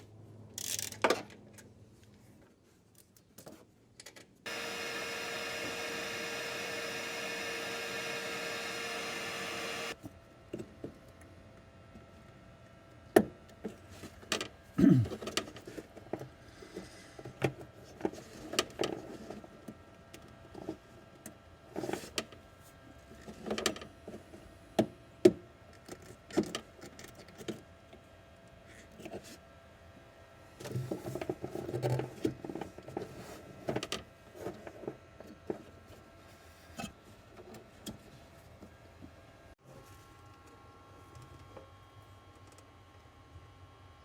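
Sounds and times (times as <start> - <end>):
small electric motor whirring: 4.5 - 10.0.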